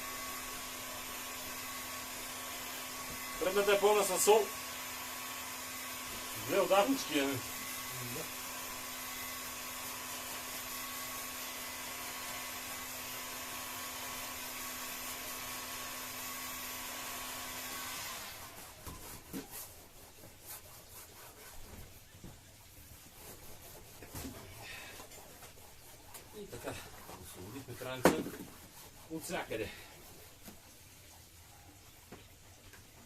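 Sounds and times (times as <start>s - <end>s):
heat gun whirring: 0.0s - 18.6s.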